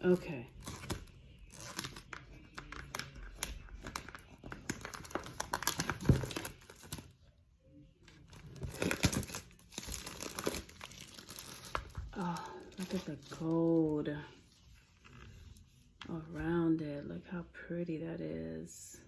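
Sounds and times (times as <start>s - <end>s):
plastic wrapping crinkling and tearing: 0.0s - 7.2s, 8.1s - 13.9s.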